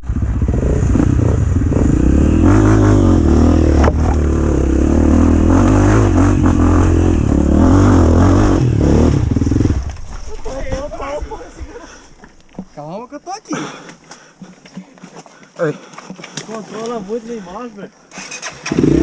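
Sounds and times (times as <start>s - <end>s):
dirt bike engine revving: 0.0s - 10.2s, 18.1s - 19.0s.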